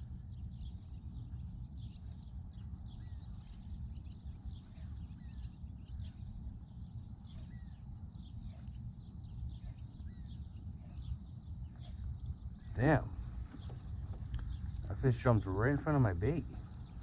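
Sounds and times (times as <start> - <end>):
birds chirping: 0.0 - 17.0
low steady rumble: 0.0 - 17.0
down-slurred bird whistle: 7.2 - 14.7.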